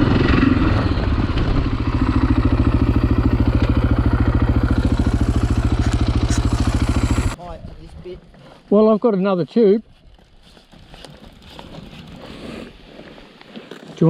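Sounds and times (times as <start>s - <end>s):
dirt bike engine idling: 0.0s - 7.4s.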